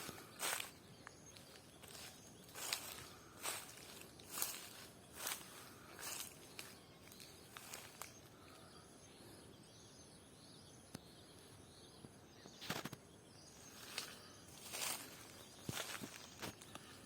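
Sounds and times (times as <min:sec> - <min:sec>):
footsteps crunching on ground: 0:00.0 - 0:08.3, 0:13.6 - 0:17.0
faint bird chirps: 0:00.0 - 0:17.0.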